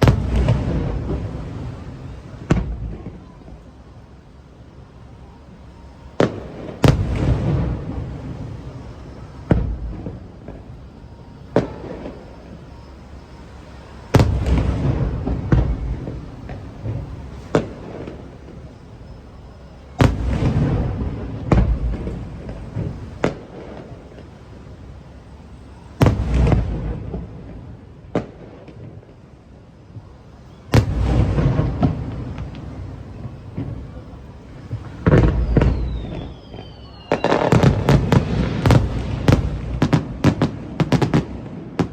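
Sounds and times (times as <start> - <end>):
fireworks bursting: 0.0 - 41.9
rumbling echo of bangs: 37.2 - 41.2.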